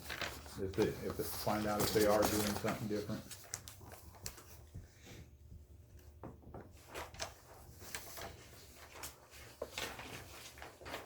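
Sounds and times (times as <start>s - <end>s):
paper rustling: 0.0s - 5.2s, 6.6s - 11.0s.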